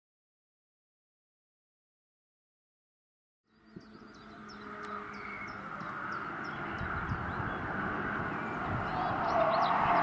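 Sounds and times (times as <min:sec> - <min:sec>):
birds chirping: 0:03.5 - 0:10.0
car engine approaching: 0:03.5 - 0:10.0.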